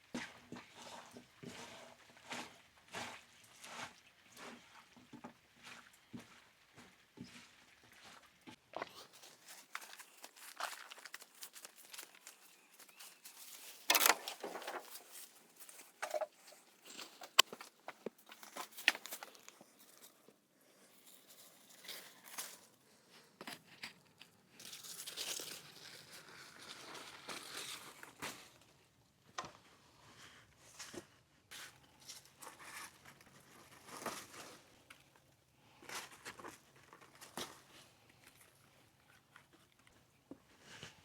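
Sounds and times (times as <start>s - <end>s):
crinkling rustling handling noise: 8.9s - 28.8s.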